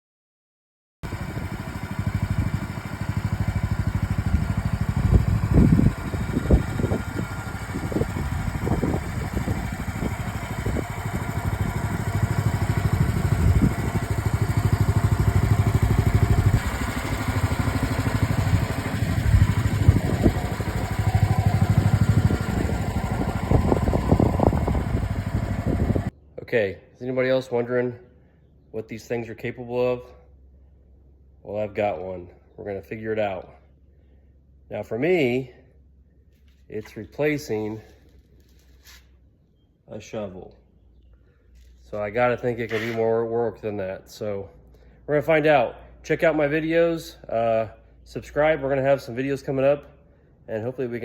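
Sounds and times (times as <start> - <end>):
small excavator engine running: 1.0 - 26.1, 42.6 - 43.0.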